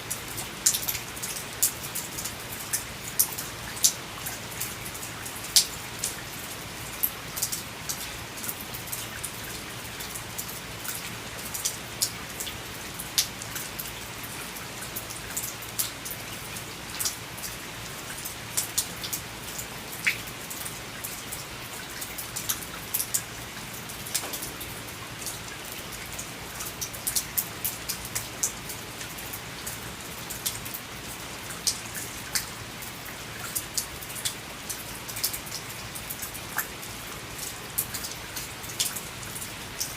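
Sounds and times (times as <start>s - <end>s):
raindrops tapping on veranda: 0.0s - 39.9s
rain hissing: 22.2s - 29.9s.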